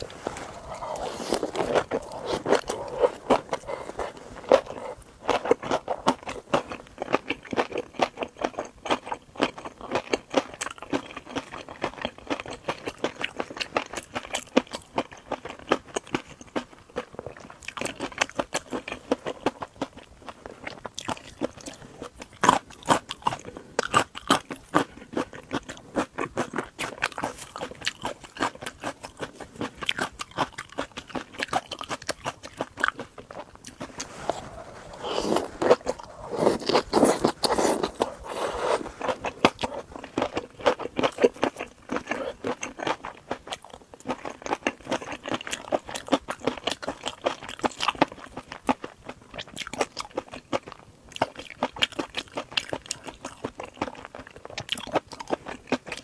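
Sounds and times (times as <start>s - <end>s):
crunching and chewing shrimp: 0.0s - 56.0s.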